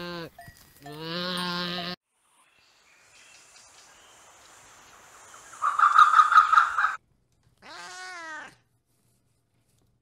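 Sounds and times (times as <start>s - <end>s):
peacock harsh calls: 5.6s - 7.0s
cat meowing: 7.6s - 8.6s.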